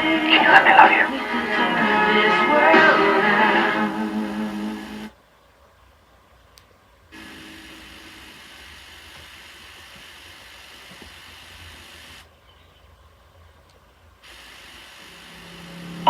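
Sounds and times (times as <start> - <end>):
tape hiss: 0.0 - 16.0
low hum: 7.2 - 9.5, 15.0 - 16.0.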